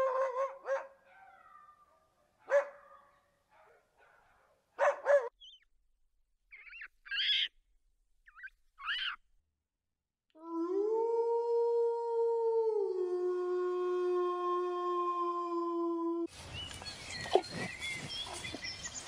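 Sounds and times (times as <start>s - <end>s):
dog barking: 0.1s - 1.4s, 2.4s - 5.4s.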